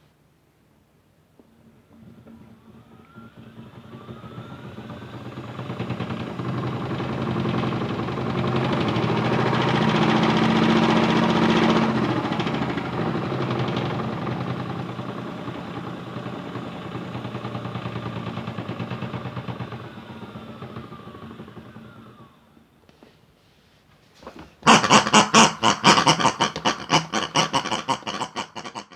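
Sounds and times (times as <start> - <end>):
small electric motor humming: 2.0 - 9.6, 13.2 - 22.6
fast drum rattle: 2.0 - 22.1, 24.6 - 28.9.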